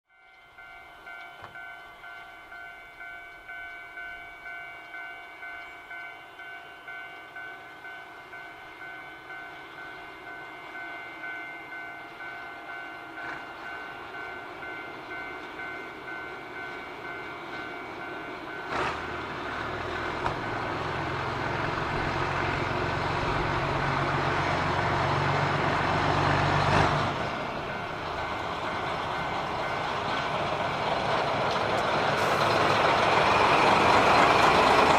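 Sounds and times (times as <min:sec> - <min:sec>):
crossing warning bell ringing: 0:00.1 - 0:34.9
diesel locomotive engine: 0:00.1 - 0:34.9.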